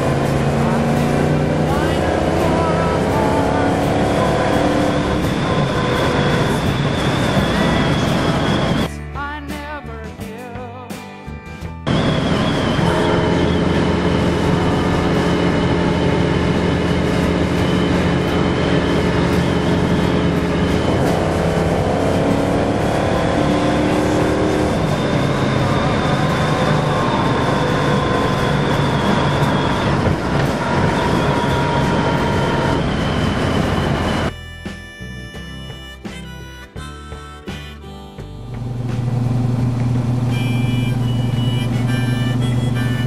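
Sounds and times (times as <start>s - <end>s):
car engine and exhaust: 0.0s - 8.9s, 11.8s - 34.3s, 38.4s - 43.0s
road noise inside car: 0.0s - 8.9s, 11.9s - 34.3s, 38.5s - 43.0s.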